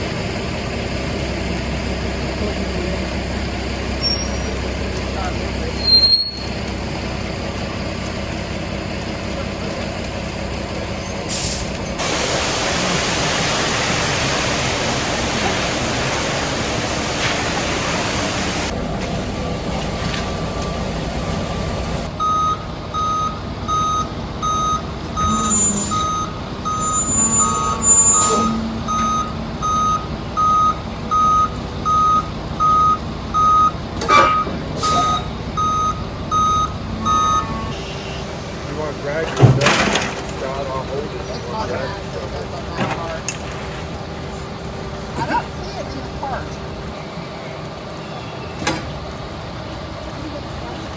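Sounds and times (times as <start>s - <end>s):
heavy vehicle engine running: 0.0s - 50.9s
loud rushing hiss: 11.3s - 18.7s
reversing alarm beeping: 22.1s - 38.2s.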